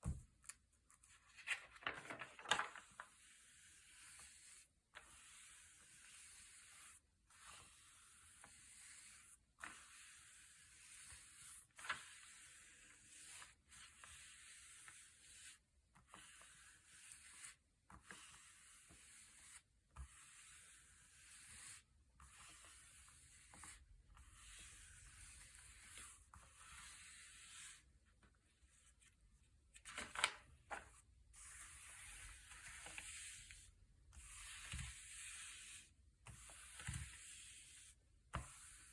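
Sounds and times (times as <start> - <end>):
glossy pages turning: 1.3 - 2.8, 29.8 - 30.8.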